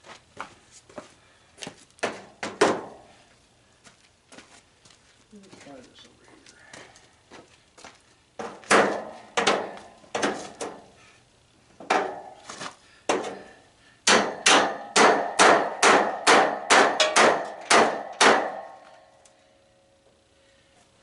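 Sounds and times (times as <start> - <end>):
hammer blows ringing: 13.1 - 18.9.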